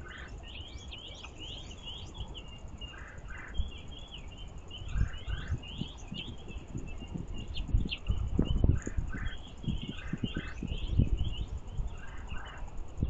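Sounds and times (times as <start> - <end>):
small songbirds chirping: 0.0 - 13.0.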